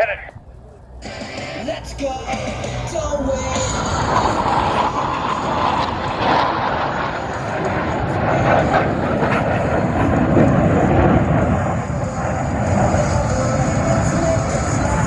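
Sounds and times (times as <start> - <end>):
jets flying past: 0.0 - 15.0.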